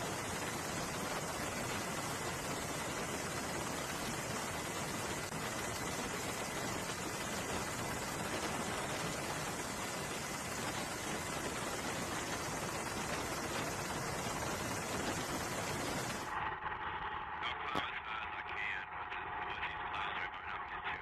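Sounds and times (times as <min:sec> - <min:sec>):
steady hiss of noise: 0:00.0 - 0:16.3.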